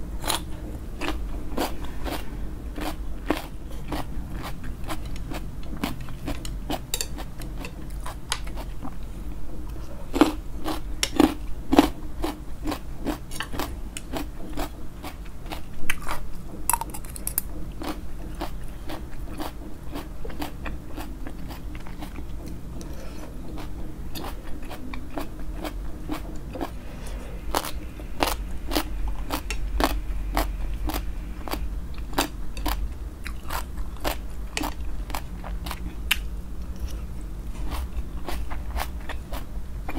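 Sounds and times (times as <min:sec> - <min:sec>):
person chewing crunchy food: 0:00.2 - 0:09.0, 0:09.7 - 0:39.9.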